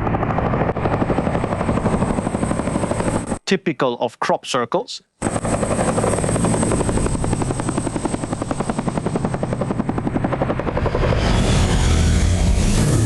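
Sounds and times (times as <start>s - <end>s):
helicopter rotor chopping: 0.0s - 3.4s, 5.2s - 13.0s
rushing noise with low rumble: 10.8s - 13.0s.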